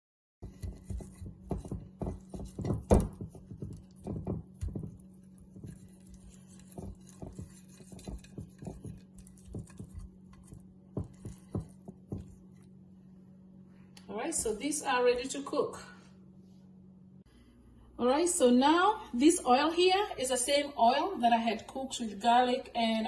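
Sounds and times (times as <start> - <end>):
steady low hum: 0.4 - 23.0
light knocks and taps: 6.7 - 12.4.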